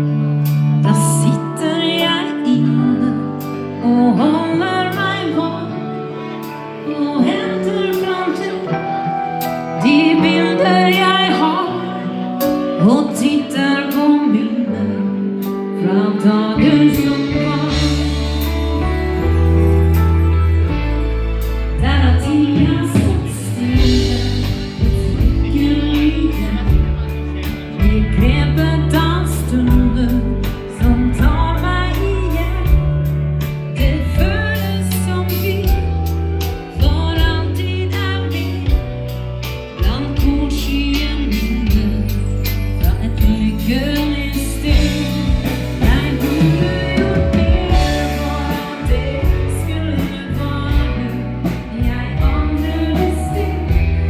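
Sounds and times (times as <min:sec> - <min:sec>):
dance band with singer: 0:39.8 - 0:54.0.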